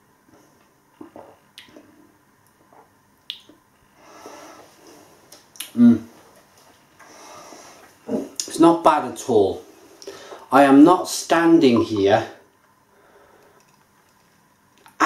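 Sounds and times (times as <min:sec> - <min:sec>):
lip smacks and clicks: 0:01.0 - 0:02.6, 0:03.2 - 0:03.6.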